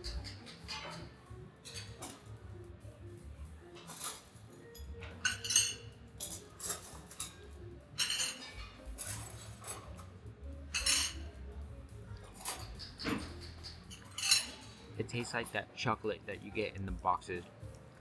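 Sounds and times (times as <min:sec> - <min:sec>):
cutlery clinking on plates: 0:00.0 - 0:02.3, 0:03.7 - 0:10.1, 0:10.7 - 0:11.4, 0:12.2 - 0:15.6.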